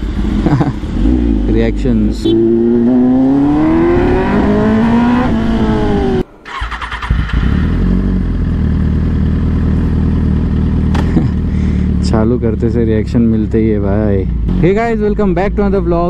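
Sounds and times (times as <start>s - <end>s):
motorcycle engine revving: 0.0s - 16.0s
motorcycle engine idling: 5.9s - 16.0s.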